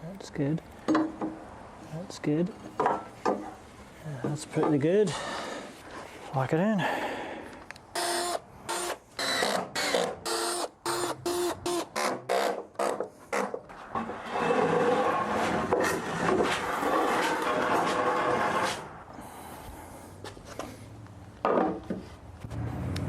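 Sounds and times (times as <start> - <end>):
power drill driving screw: 8.0 - 12.6.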